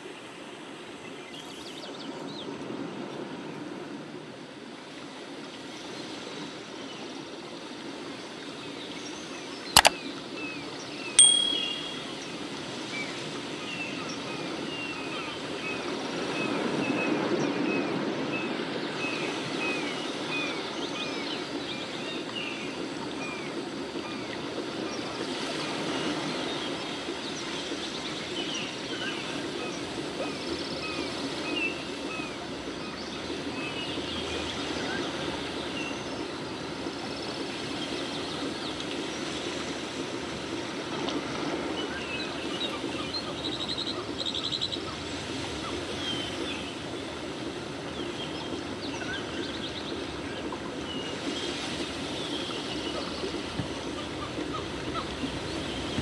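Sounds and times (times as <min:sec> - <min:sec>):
steady watery murmur: 0:00.0 - 0:56.0
small bird chirping: 0:11.2 - 0:12.3.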